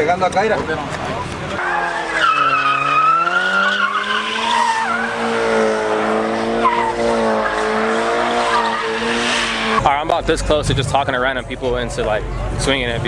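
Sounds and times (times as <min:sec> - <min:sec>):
tyres squealing on pavement: 0:00.0 - 0:09.9
engine at high revs: 0:01.7 - 0:09.8.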